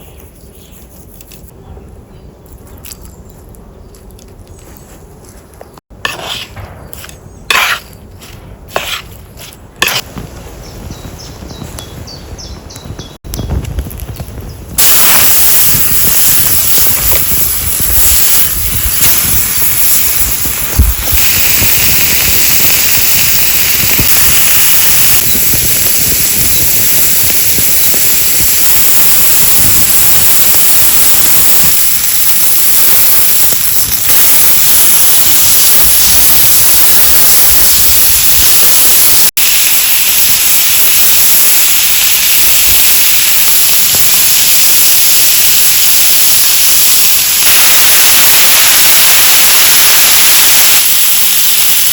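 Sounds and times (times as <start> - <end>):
steak sizzling: 7.5 - 10.1, 13.8 - 51.9.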